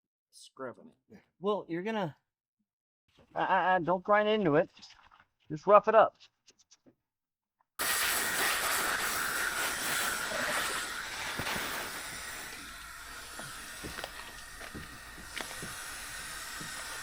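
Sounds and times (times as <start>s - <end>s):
power sander hissing and whining: 7.8s - 17.0s.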